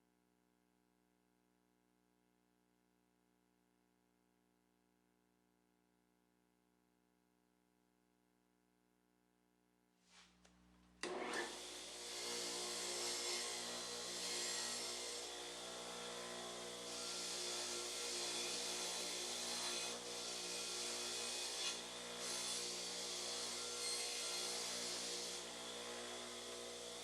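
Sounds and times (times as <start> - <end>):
power tool motor running: 11.0 - 27.0.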